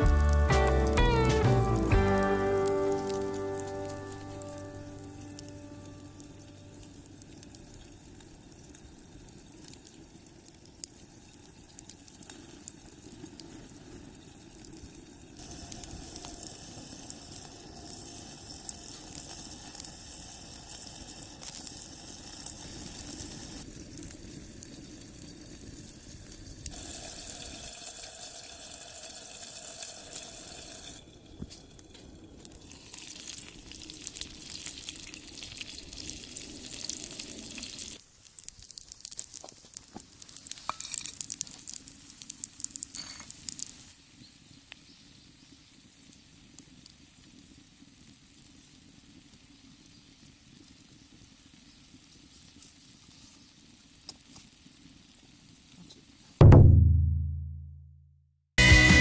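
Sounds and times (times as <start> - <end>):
wood fire crackling: 0.0 - 56.3
dumplings sizzling in a skillet: 0.0 - 56.4.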